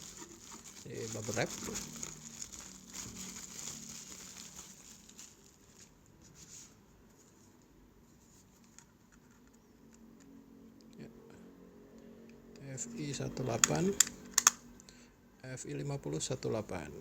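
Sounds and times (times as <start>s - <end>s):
bubble wrap crinkling: 0.0s - 6.7s.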